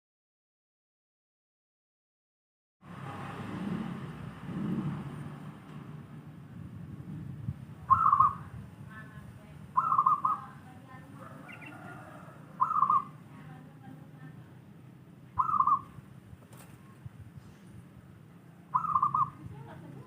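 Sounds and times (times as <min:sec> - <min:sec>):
faint bird chirps: 0:07.9 - 0:08.5, 0:09.8 - 0:10.6, 0:11.4 - 0:13.2, 0:15.4 - 0:16.0, 0:18.7 - 0:19.5
dove cooing: 0:07.9 - 0:08.6, 0:09.7 - 0:13.2, 0:15.4 - 0:16.0, 0:18.7 - 0:19.8.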